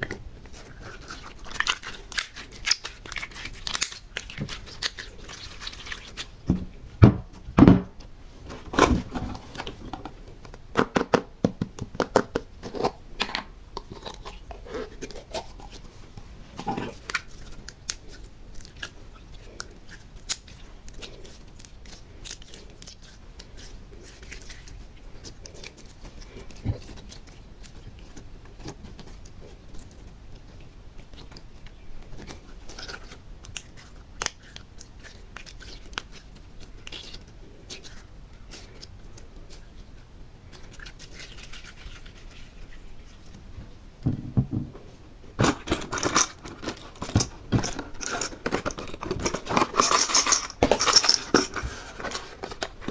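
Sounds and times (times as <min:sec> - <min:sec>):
sticky clicking and crackling: 0:00.0 - 0:06.4.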